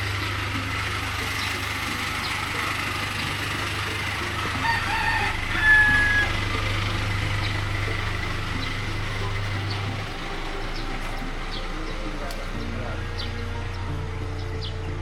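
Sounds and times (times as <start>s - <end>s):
steady low hum: 0.0s - 15.0s
rooster crowing: 4.5s - 6.6s.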